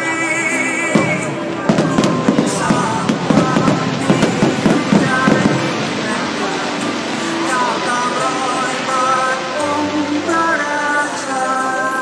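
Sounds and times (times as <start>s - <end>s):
music: 0.0s - 12.0s
fireworks popping and crackling: 0.8s - 9.3s.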